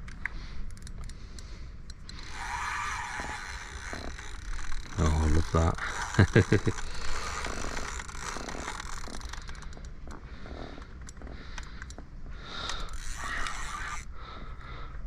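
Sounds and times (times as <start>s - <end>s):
sharp reel clicks: 0.0s - 10.0s, 10.8s - 14.1s
fishing reel winding: 1.9s - 10.0s, 12.6s - 14.1s.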